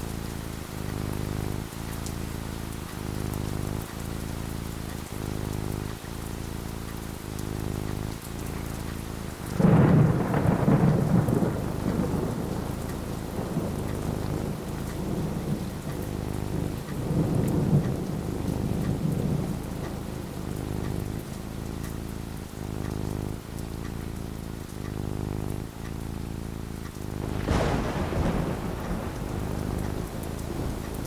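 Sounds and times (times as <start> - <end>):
steady rain falling: 0.0 - 31.0
thunder clap and rumble: 6.9 - 26.0, 26.8 - 31.0.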